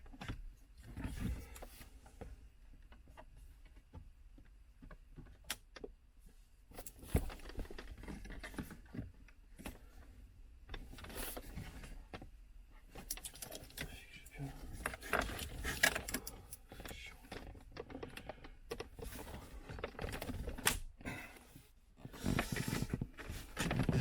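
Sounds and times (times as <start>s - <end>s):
small parts clicking and knocking: 12.9s - 14.2s, 14.8s - 19.1s.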